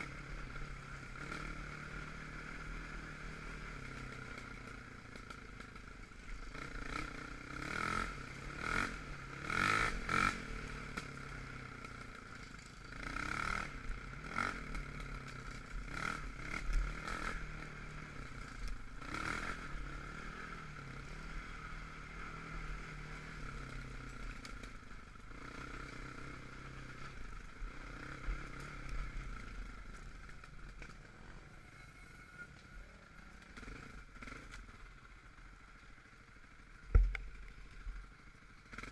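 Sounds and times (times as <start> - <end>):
off-road vehicle engine revving: 6.5 - 11.4, 12.9 - 15.2, 15.9 - 24.0.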